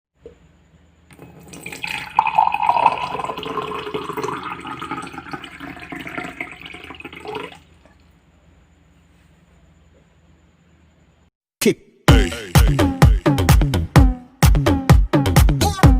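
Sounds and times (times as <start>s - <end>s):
liquid running: 1.1s - 8.2s.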